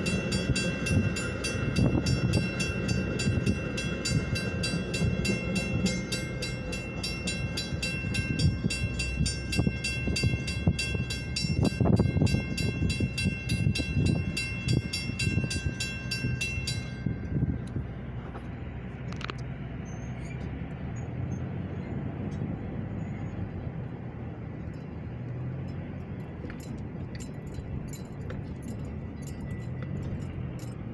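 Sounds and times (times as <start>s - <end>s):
crossing bell ringing rapidly: 0.0s - 17.6s, 24.6s - 30.9s
train cars rumbling past: 0.0s - 30.9s.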